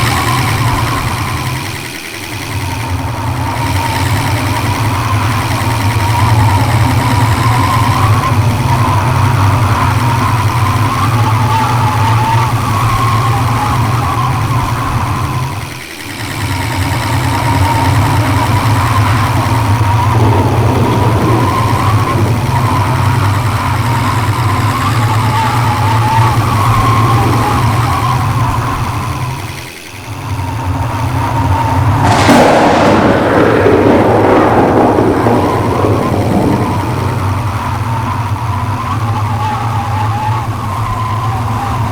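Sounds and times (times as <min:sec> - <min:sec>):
vehicle engine and road noise: 0:16.9 - 0:34.0.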